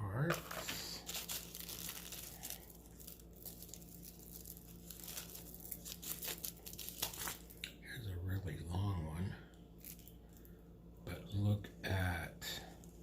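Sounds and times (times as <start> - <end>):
packaging crinkling and rustling: 0.3 - 7.6.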